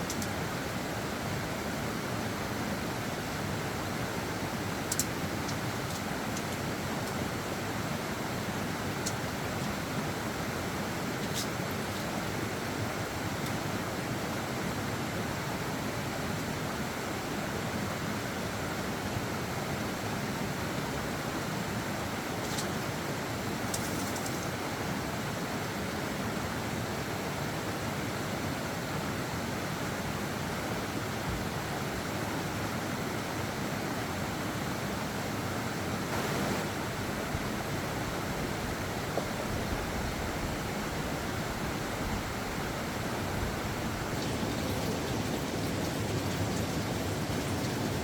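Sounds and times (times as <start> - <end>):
steady rushing noise: 36.0 - 37.1, 43.0 - 48.0.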